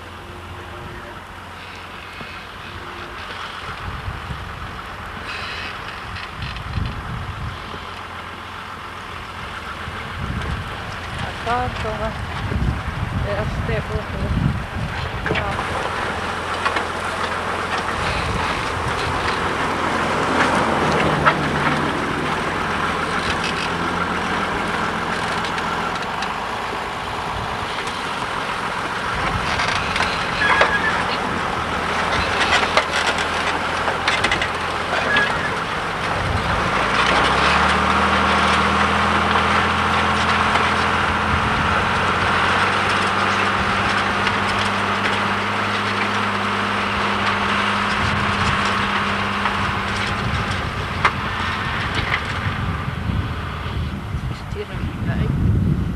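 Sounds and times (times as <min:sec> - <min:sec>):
tractor diesel engine running: 0:00.0 - 0:55.9
clicks and rattles: 0:27.7 - 0:41.0.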